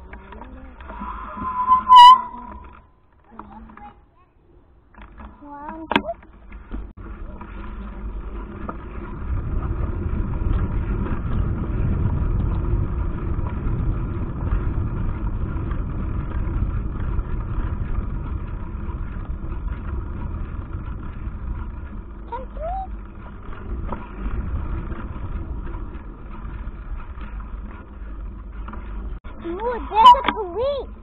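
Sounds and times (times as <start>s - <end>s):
tyres rumbling on road: 4.7s - 31.0s
wind buffeting microphone: 7.0s - 31.0s.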